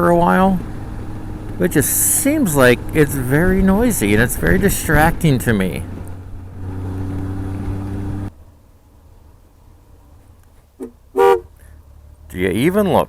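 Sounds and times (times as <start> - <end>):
motorcycle engine running: 0.0 - 8.3
road and wind noise: 0.0 - 13.0
horn toot: 10.8 - 11.6.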